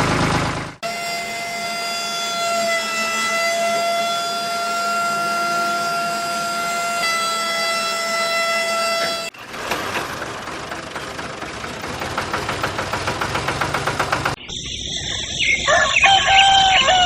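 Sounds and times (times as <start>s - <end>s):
engine running: 0.0s - 17.0s
high horn-like tone: 0.8s - 9.4s.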